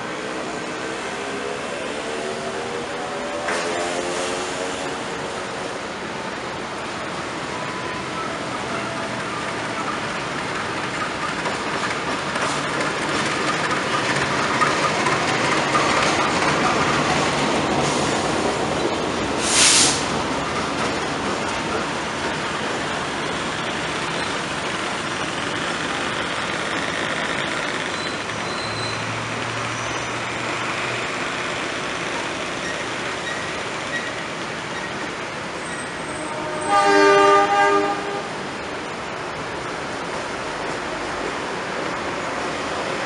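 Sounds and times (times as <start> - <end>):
train rumbling on track: 0.0 - 43.0
train horn: 36.0 - 38.4.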